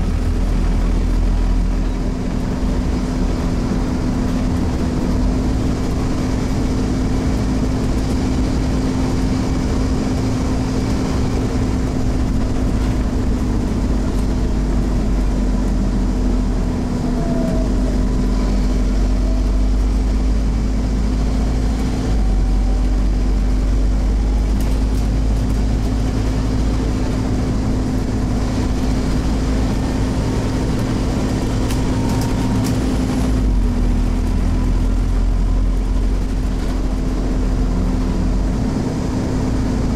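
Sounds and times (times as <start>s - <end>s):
bus diesel engine drone: 0.0s - 39.9s
transmission whine: 0.0s - 39.9s.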